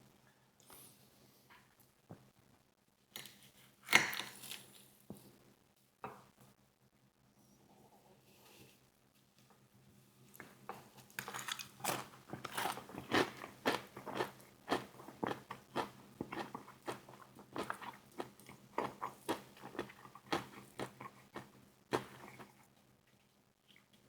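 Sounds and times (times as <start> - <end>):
crunchy chewing of fried chicken: 10.4 - 24.0.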